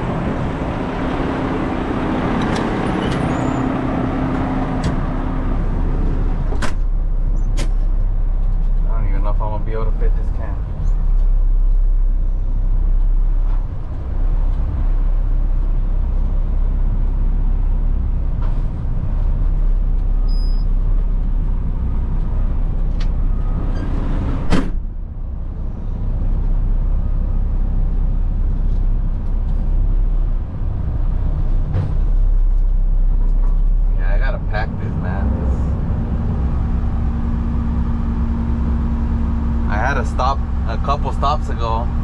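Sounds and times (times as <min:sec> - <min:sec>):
truck engine and road rumble: 0:00.0 - 0:42.0
sharp clunk: 0:06.5 - 0:07.9, 0:24.5 - 0:24.8.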